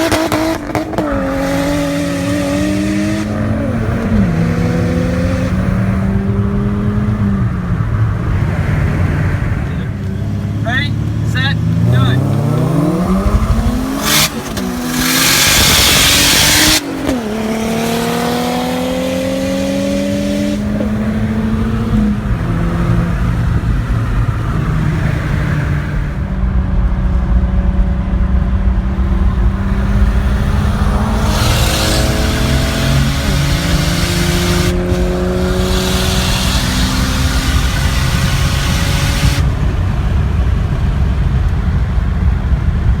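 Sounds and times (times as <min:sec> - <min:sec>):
car engine accelerating: 0:00.0 - 0:43.0
loud turbo hiss: 0:29.4 - 0:39.4.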